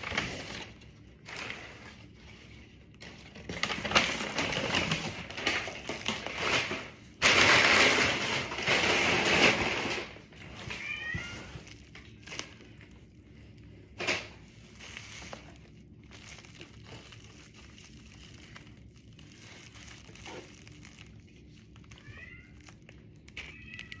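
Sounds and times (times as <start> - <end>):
rustling and crinkling: 0.0 - 24.0
cat meowing: 10.6 - 11.6, 22.0 - 22.6, 23.4 - 24.0.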